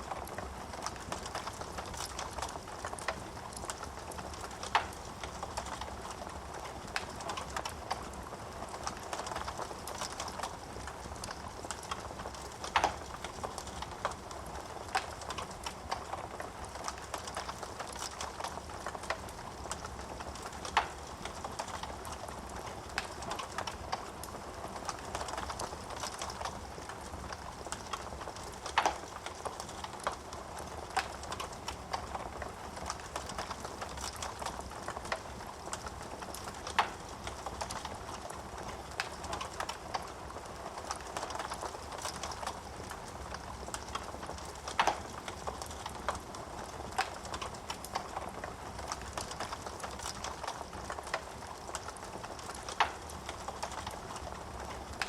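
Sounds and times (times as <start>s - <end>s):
wood fire crackling: 0.0s - 55.0s
sharp pops from fire: 43.7s - 46.2s.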